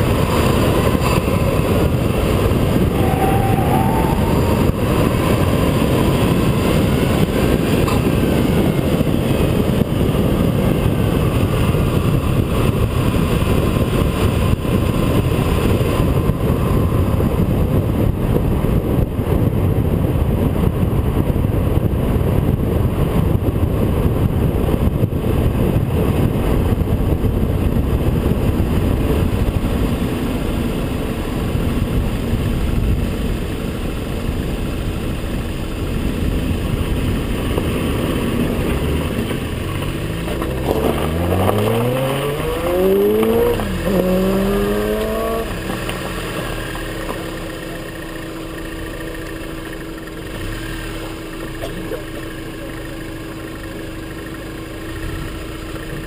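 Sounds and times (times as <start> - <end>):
car engine and intake: 0.0 - 17.8, 41.1 - 56.0
road and wind rush: 0.0 - 56.0
engine revving up: 40.1 - 47.4.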